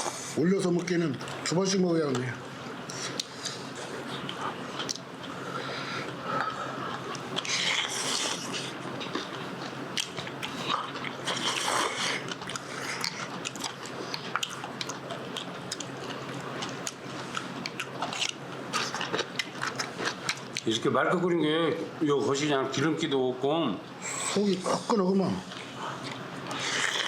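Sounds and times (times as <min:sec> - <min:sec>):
crunchy chewing: 0:00.8 - 0:05.4, 0:06.0 - 0:20.7, 0:25.5 - 0:27.0.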